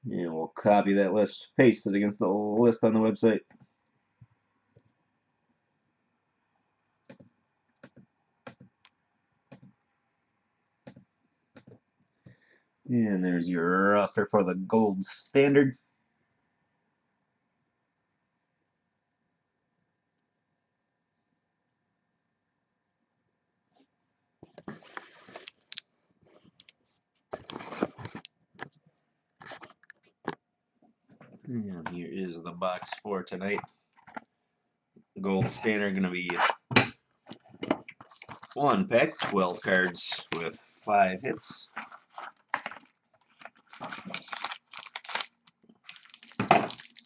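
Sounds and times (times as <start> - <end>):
box and wrapper rustling: 24.6 - 25.8, 27.3 - 28.3, 29.4 - 30.2, 37.2 - 47.0.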